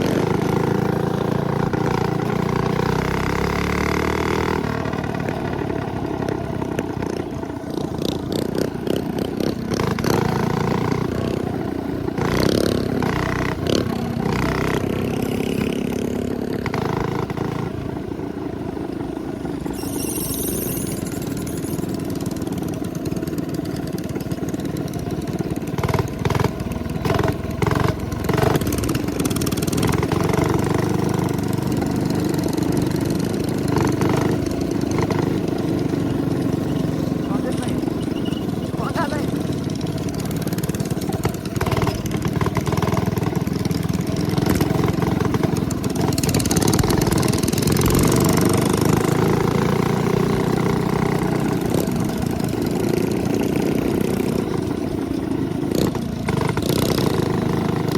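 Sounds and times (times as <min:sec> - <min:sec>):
minibike engines running: 0:18.2 - 0:57.9.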